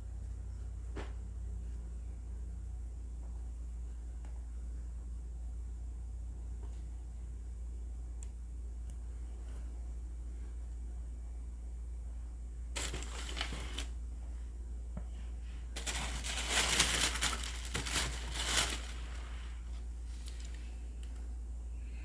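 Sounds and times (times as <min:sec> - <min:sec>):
steady low hum: 0:00.0 - 0:22.0
packaging crinkling: 0:12.8 - 0:14.0, 0:15.8 - 0:21.2.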